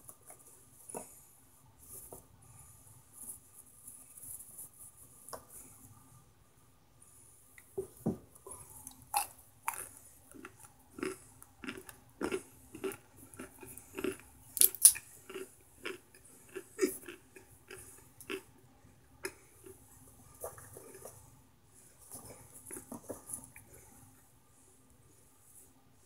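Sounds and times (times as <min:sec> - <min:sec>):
person chewing crunchy food: 0:08.5 - 0:18.5.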